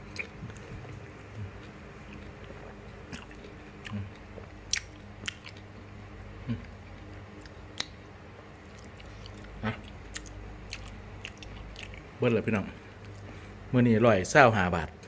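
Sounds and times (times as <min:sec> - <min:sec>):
person chewing food: 0:00.0 - 0:05.8, 0:06.5 - 0:12.1.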